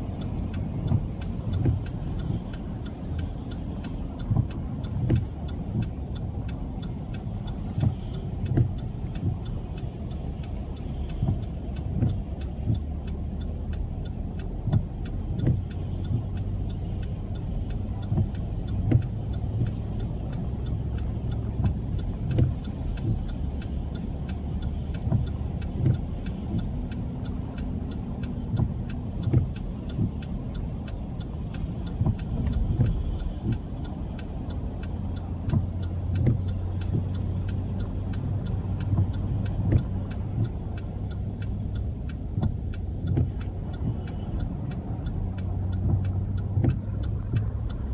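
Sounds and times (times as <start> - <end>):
car engine humming: 0.0 - 47.9
fast even ticking: 0.0 - 47.9.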